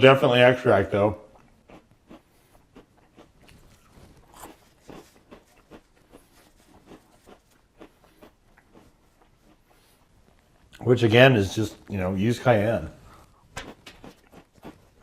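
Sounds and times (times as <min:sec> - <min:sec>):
crunching and chewing snacks: 0:01.3 - 0:10.8, 0:13.1 - 0:15.0.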